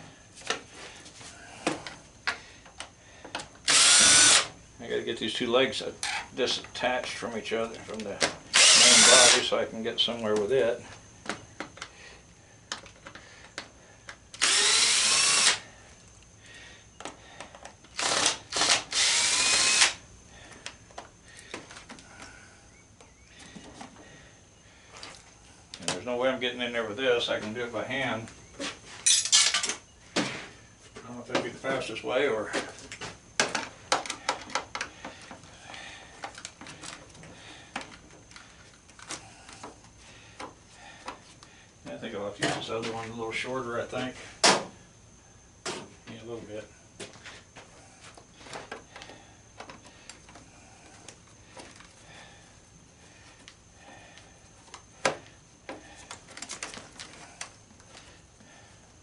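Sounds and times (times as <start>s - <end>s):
power drill whining: 3.6s - 4.5s, 8.5s - 9.4s, 14.4s - 15.7s, 17.9s - 20.0s
hand tools clicking and knocking: 33.4s - 35.4s.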